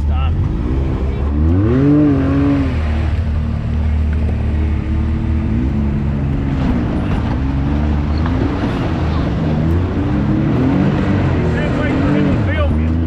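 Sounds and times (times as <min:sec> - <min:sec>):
utility vehicle engine revving: 0:00.0 - 0:13.0.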